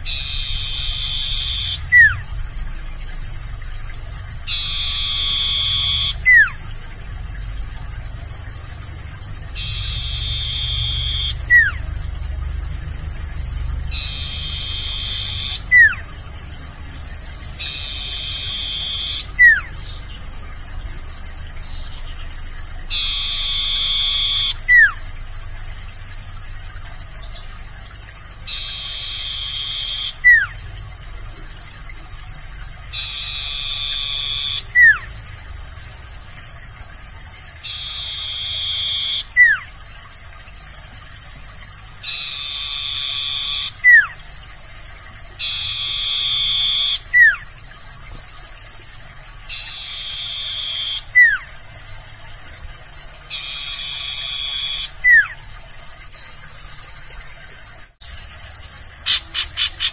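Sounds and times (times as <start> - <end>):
bird singing buzzy trilled song: 0.0 - 2.3, 4.4 - 6.6, 9.5 - 11.9, 13.2 - 16.3, 16.9 - 20.8, 21.5 - 25.0, 28.4 - 30.8, 32.9 - 35.1, 37.6 - 39.7, 41.6 - 44.2, 49.5 - 52.3, 53.2 - 55.4.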